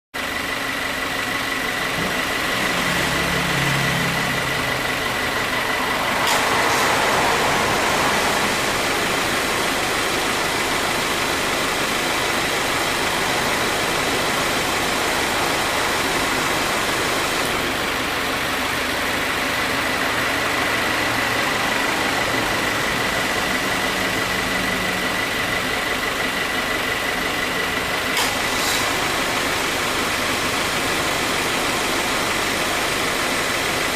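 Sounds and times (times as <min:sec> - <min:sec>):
car engine idling: 0:00.2 - 0:33.9
compressor clutch click: 0:28.1 - 0:28.9.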